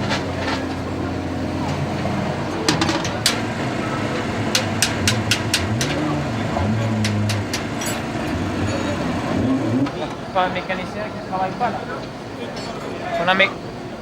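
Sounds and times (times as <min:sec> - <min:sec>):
low engine hum: 0:00.0 - 0:10.4
hand tools clicking and tapping: 0:04.5 - 0:06.0, 0:06.9 - 0:08.1.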